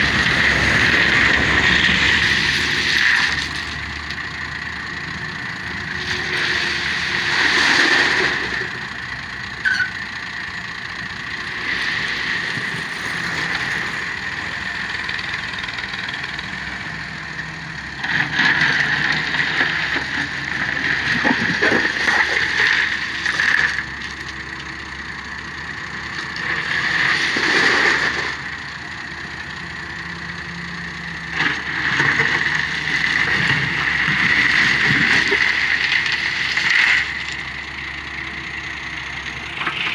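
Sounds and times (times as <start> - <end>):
excavator engine and hydraulics: 0.0 - 39.9.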